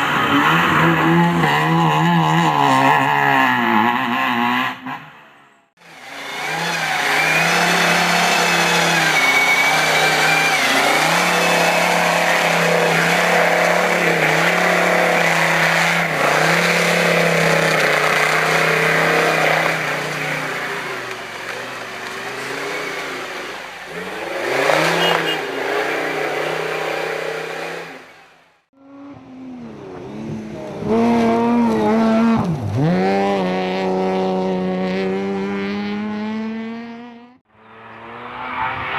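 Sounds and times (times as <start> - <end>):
race car engines revving: 0.0 - 38.9
car passing by: 37.6 - 38.9.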